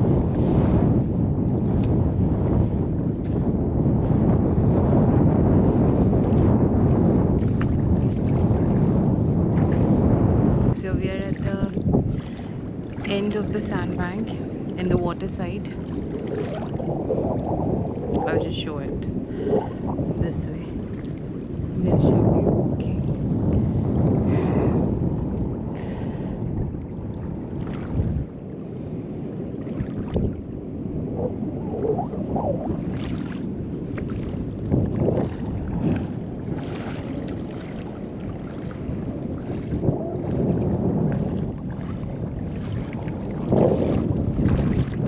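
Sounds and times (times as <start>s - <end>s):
wind buffeting microphone: 0.0s - 45.0s
small waves washing: 10.8s - 21.8s, 24.3s - 45.0s.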